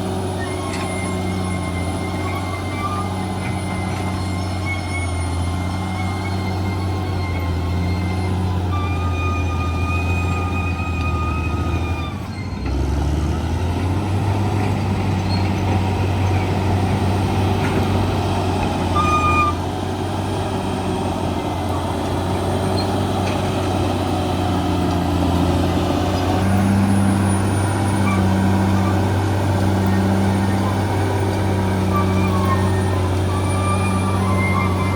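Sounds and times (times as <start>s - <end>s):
bulldozer diesel engine running: 0.0s - 34.9s.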